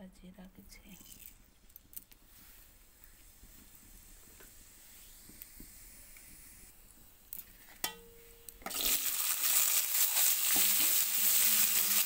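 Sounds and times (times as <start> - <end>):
loud frying sizzle: 8.6 - 12.0
seeds sizzling in hot oil: 8.6 - 12.0.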